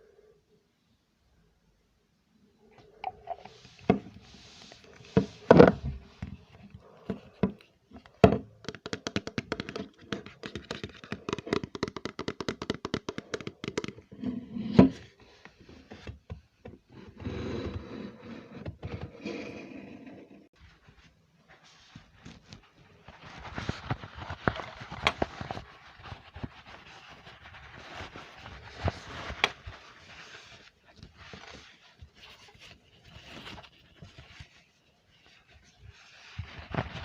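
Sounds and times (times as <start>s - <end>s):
soft scratching: 3.1s - 7.8s, 17.1s - 37.0s.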